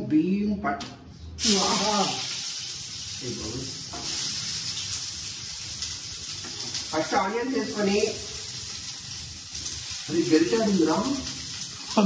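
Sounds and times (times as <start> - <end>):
onion sizzling in hot oil: 1.4 - 12.0.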